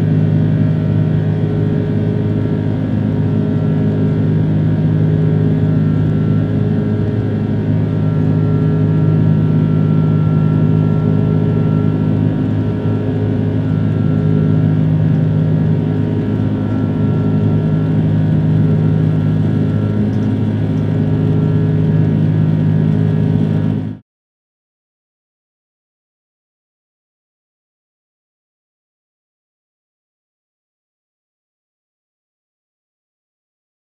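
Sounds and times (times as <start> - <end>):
jet engines droning: 0.0 - 24.0.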